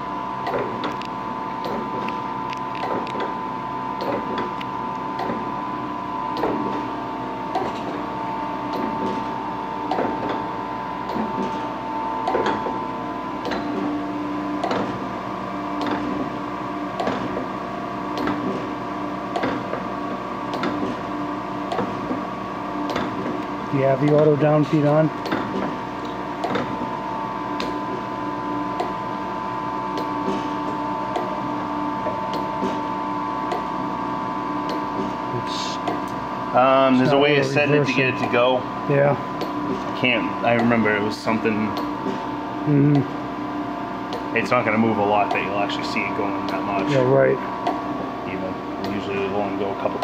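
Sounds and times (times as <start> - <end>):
sharp machine click: 26.4 - 26.7.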